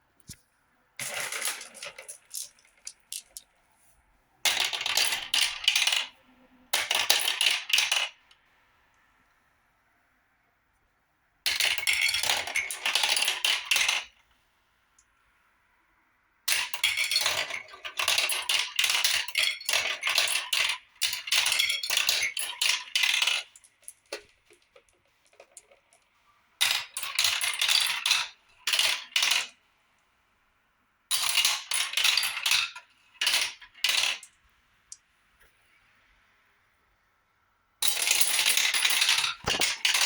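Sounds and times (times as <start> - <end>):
marbles clattering down a run: 1.0 - 3.4, 16.5 - 25.9, 37.8 - 40.0.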